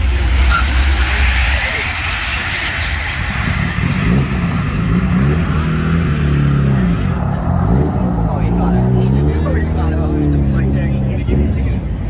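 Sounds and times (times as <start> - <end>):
car engine revving: 0.0 - 12.0
steady low rumble: 0.0 - 12.0.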